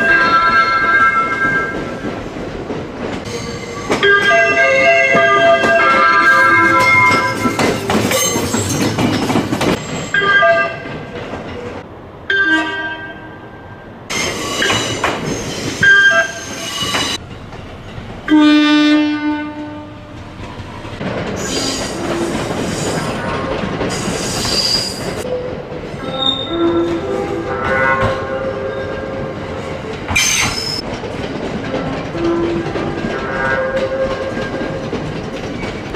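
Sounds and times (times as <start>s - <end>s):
passing train noise: 0.0s - 35.9s
train air horn blasts: 18.3s - 20.2s, 26.1s - 29.4s.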